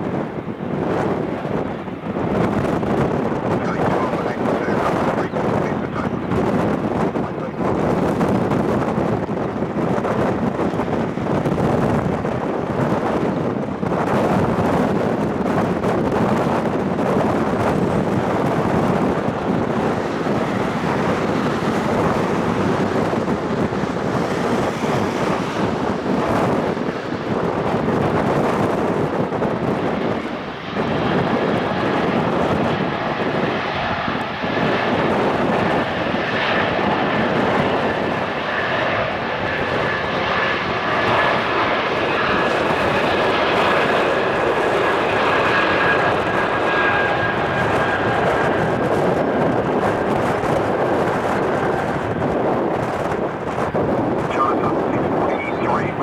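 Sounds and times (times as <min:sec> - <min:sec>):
jet taking off: 0:00.0 - 0:56.0.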